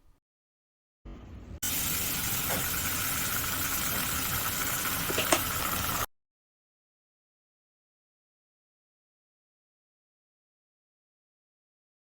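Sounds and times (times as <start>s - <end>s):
oil sizzling in a frying pan: 1.6s - 6.1s.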